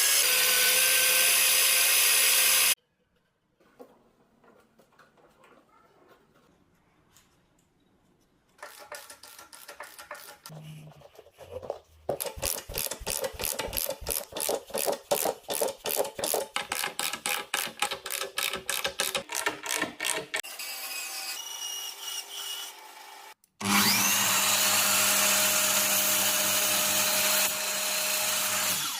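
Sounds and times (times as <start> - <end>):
scraping strokes on wood: 8.6 - 18.2
power tool motor whine: 23.6 - 28.9.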